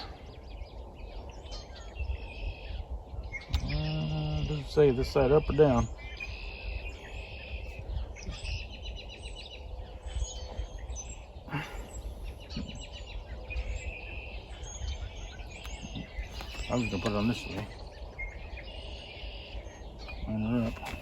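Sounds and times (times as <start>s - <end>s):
low background rumble: 0.0s - 21.0s
small birds chirping: 0.0s - 21.0s.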